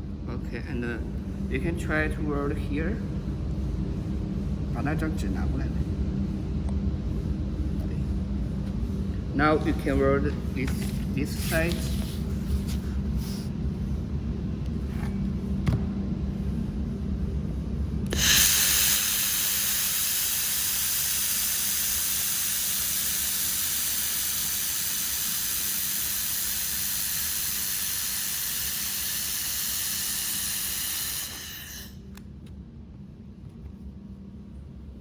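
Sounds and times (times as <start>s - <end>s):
low steady hum: 0.0s - 35.0s
compressed air hissing from nozzle: 9.8s - 13.8s, 18.1s - 32.2s.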